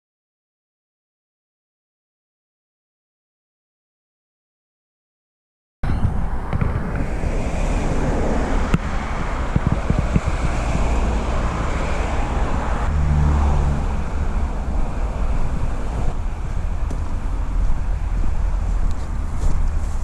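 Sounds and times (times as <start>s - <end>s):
wind buffeting microphone: 5.8s - 13.0s, 13.8s - 20.0s.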